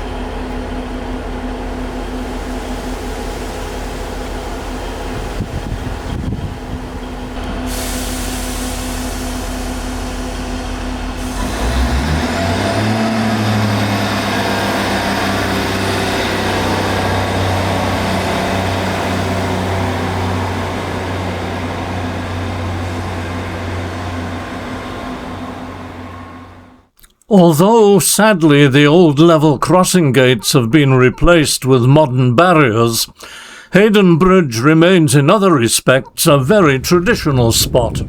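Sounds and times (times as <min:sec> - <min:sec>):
diesel train engine running: 0:00.0 - 0:26.9, 0:28.2 - 0:38.0.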